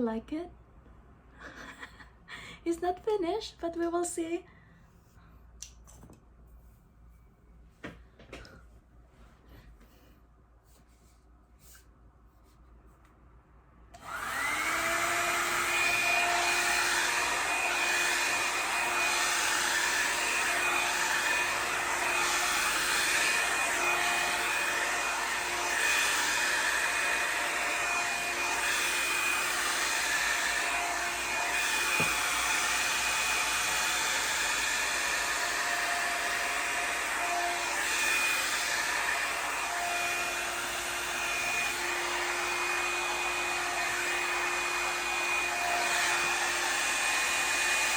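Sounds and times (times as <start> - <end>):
hot-air brush motor whine: 14.0 - 47.9.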